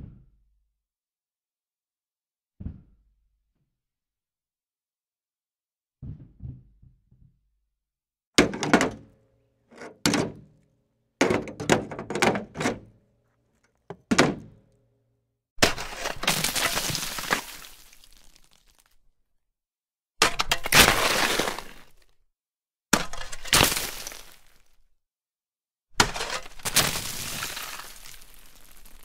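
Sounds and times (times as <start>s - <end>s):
heavy thuds and knocks: 8.4s - 9.1s, 9.8s - 10.5s, 11.2s - 12.9s, 13.9s - 14.6s.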